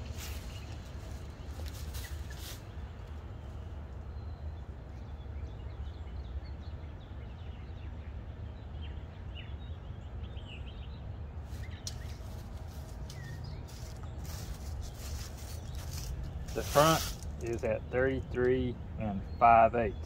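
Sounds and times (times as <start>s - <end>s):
low background rumble: 0.0s - 20.0s
small bird chirping: 11.5s - 20.0s.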